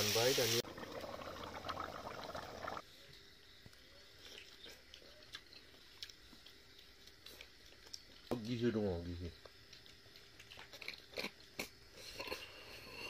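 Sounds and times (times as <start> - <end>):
mouth clicks of chewing: 4.2 - 8.3.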